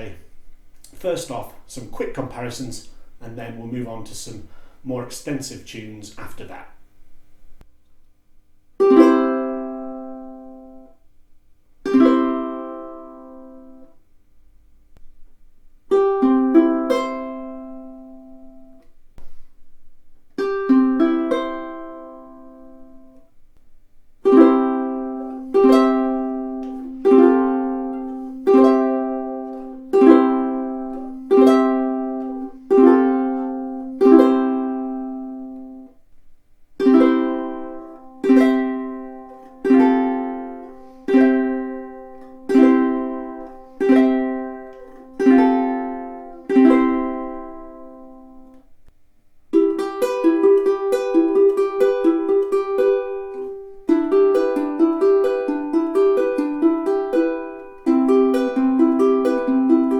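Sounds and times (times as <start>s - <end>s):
ukulele chords strummed: 8.8s - 11.0s, 11.8s - 14.0s, 15.9s - 19.5s, 20.4s - 23.4s, 24.2s - 36.0s, 36.8s - 48.7s, 49.5s - 59.9s.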